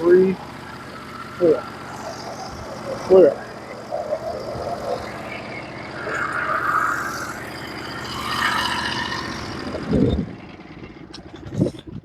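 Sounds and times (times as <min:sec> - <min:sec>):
small gasoline engine idling: 0:00.0 - 0:04.0, 0:07.4 - 0:12.0.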